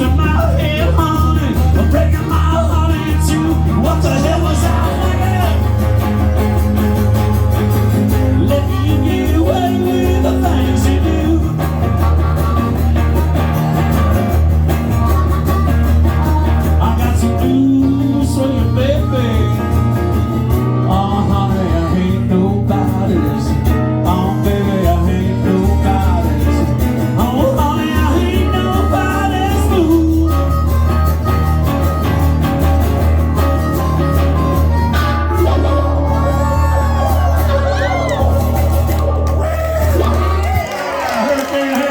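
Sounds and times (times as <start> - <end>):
lead guitar bending notes: 0.0 - 40.5
bass and drum groove: 0.0 - 40.8.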